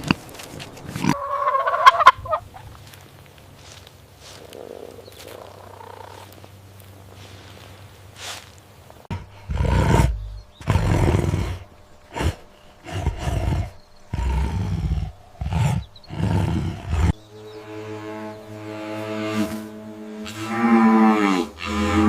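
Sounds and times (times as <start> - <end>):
large animal deep calls: 9.1 - 17.2.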